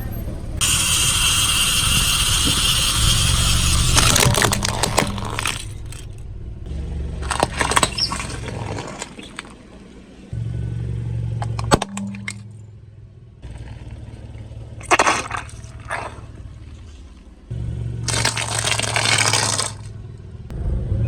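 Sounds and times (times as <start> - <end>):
car engine running: 0.0 - 21.0
loud hiss: 0.6 - 4.1
tyre crunching over objects: 3.9 - 6.2, 7.2 - 9.9, 14.8 - 17.4, 18.0 - 19.9.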